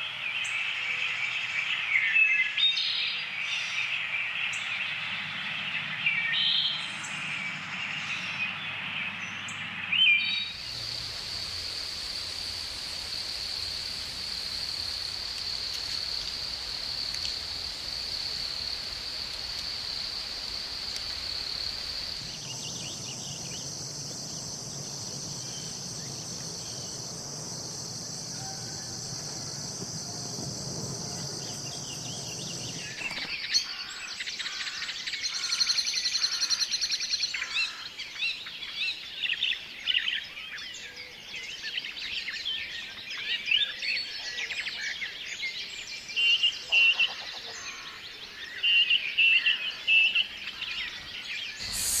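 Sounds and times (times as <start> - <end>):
high insect drone: 10.4 - 37.8, 51.6 - 52.0
low hum: 20.6 - 33.0
birds chirping and trilling: 20.9 - 52.0.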